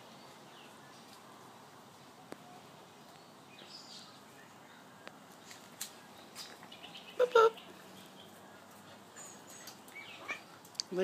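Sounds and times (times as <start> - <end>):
faint sharp clicks: 10.6 - 11.0.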